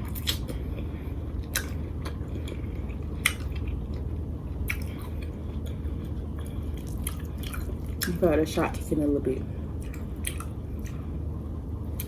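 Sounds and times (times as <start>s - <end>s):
person chewing food: 0.0s - 8.2s, 9.7s - 11.2s
wet mouth smacks: 9.9s - 11.0s.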